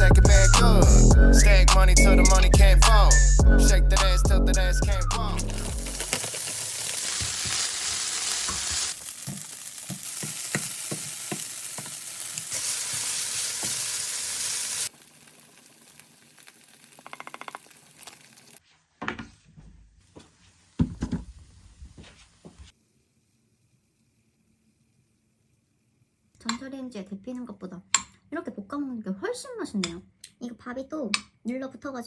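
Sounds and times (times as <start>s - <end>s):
rice sizzling in a frying pan: 5.6s - 18.6s, 22.7s - 26.2s
spatula scraping and tapping pan: 5.9s - 13.8s, 17.0s - 18.2s
quiet knocks and thumps: 19.0s - 22.6s.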